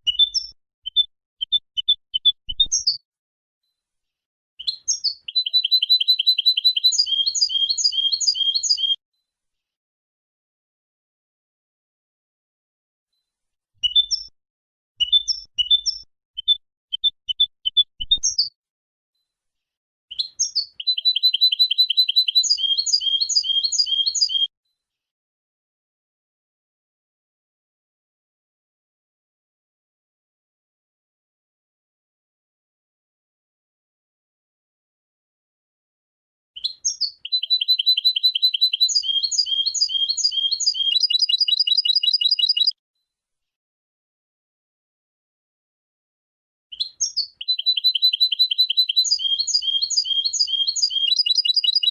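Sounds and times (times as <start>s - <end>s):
goldfinch singing: 4.6s - 9.0s, 20.4s - 24.5s, 36.6s - 42.7s, 46.8s - 51.9s.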